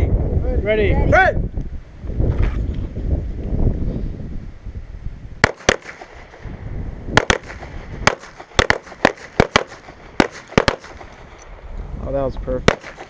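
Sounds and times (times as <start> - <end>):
pistol shots: 5.4 - 6.4, 7.1 - 11.4, 12.6 - 13.0.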